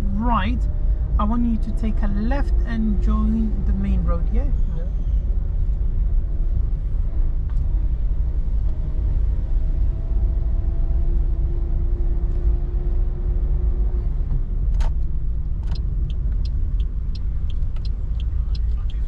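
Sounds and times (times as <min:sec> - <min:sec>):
car road and engine rumble: 0:00.0 - 0:19.0
turn indicator ticking: 0:14.8 - 0:19.0.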